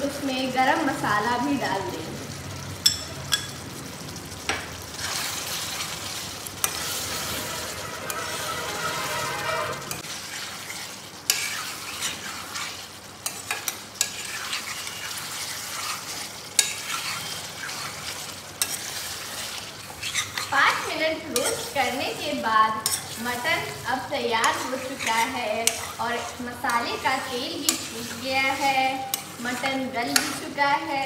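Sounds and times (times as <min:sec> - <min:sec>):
meat sizzling in metal pot: 0:00.0 - 0:31.0
metal spoon stirring and scraping: 0:04.9 - 0:31.0.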